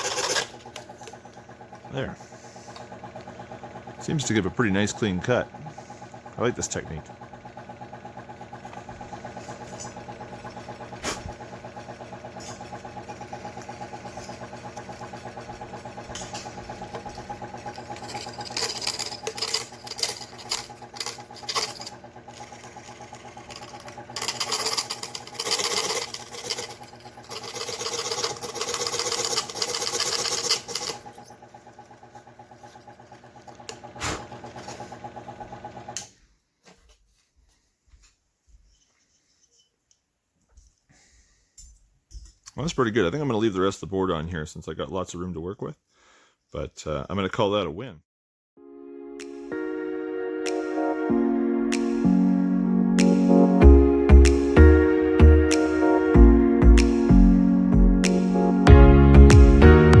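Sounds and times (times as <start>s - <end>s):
saw blade cutting board: 0.0s - 0.7s, 17.7s - 31.2s
scroll saw humming: 0.0s - 36.1s.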